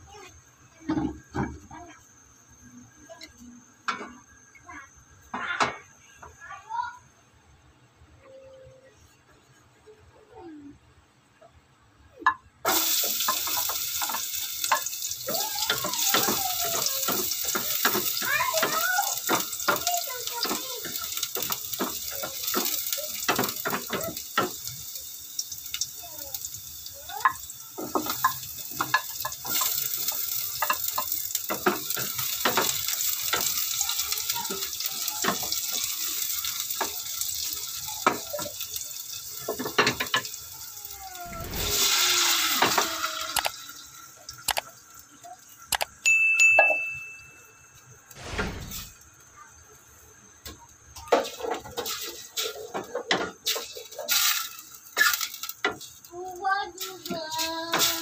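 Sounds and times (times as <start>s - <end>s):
garlic and onion sizzling in oil: 12.6s - 58.0s.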